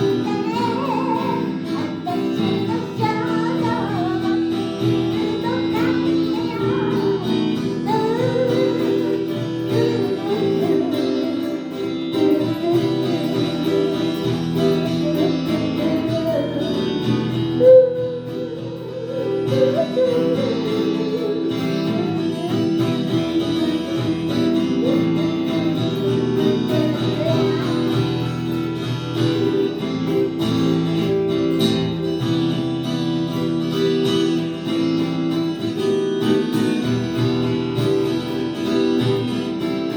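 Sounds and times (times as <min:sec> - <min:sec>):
strummed acoustic guitar music: 0:00.0 - 0:39.9.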